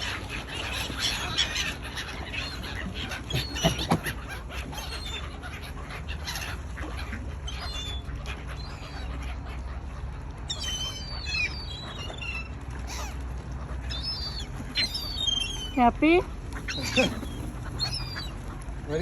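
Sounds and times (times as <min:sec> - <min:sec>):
waterbirds calling: 0:00.0 - 0:19.0
low steady rumble: 0:04.2 - 0:19.0.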